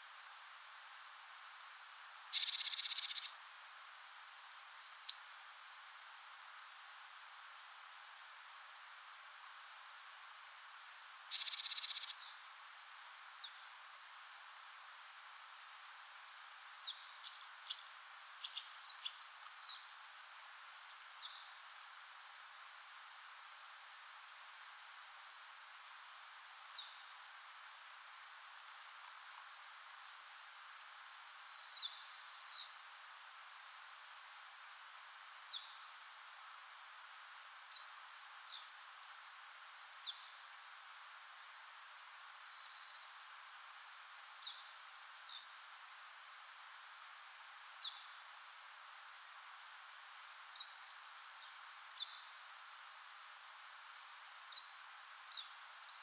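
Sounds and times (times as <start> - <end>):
faint steady hiss: 0.0 - 56.0
soft bird chirps: 2.3 - 3.4, 7.6 - 9.4, 11.1 - 12.4, 15.4 - 21.6, 25.1 - 27.2, 28.1 - 36.0, 36.8 - 39.0, 39.7 - 43.4, 44.1 - 45.7, 47.2 - 53.0, 53.8 - 56.0.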